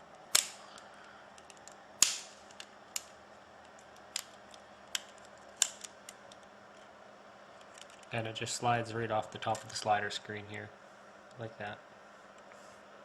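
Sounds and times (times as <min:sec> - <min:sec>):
plastic clips snapping: 0:00.3 - 0:00.6, 0:01.4 - 0:06.5.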